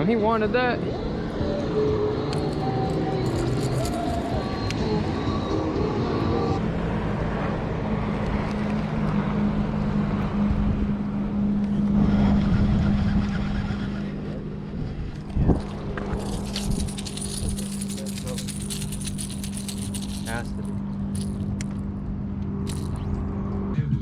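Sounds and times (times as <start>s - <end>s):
motorboat engine humming: 0.0s - 23.8s
wind noise on microphone: 10.0s - 20.4s.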